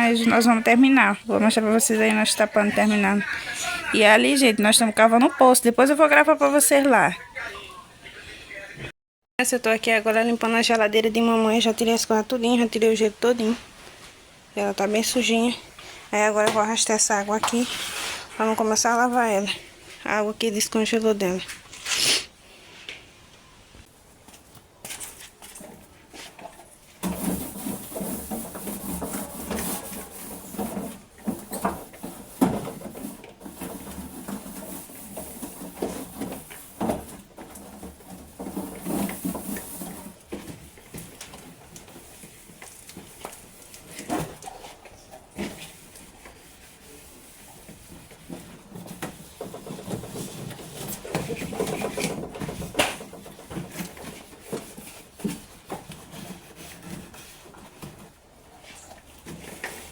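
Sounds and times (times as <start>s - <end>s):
scrubbing and rubbing strokes: 17.2s - 20.2s, 21.7s - 22.9s, 25.2s - 59.9s.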